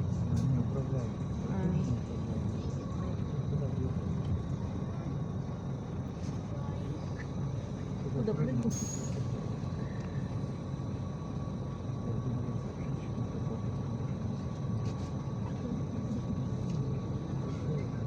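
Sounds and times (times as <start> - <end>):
bus engine and road rumble: 0.0 - 18.0.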